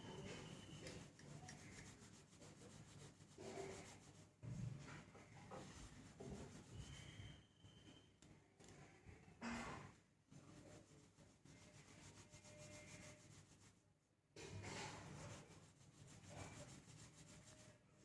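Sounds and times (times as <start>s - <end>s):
rubbing wet hair: 0.0s - 4.3s, 10.4s - 13.8s, 15.0s - 17.8s.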